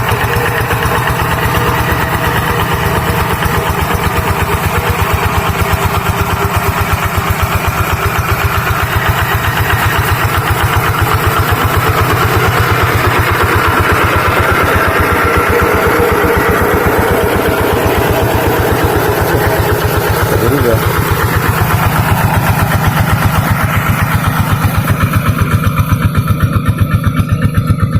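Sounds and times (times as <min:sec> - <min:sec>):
tractor engine chugging: 0:00.0 - 0:27.9.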